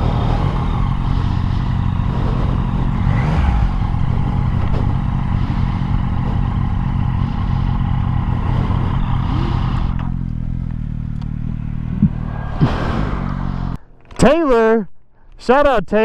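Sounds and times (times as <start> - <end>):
wind rush: 0.0 - 10.0, 11.4 - 13.8
motorcycle engine running: 0.0 - 13.8.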